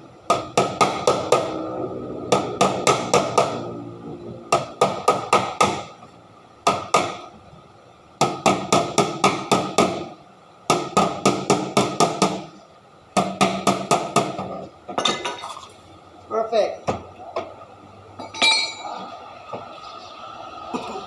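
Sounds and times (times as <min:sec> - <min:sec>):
hammer striking metal: 0:00.3 - 0:01.7, 0:02.3 - 0:03.8, 0:18.2 - 0:18.9.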